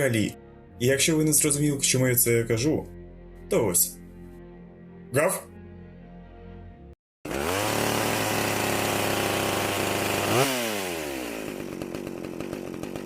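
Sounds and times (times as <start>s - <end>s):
chainsaw engine revving: 7.2s - 13.0s.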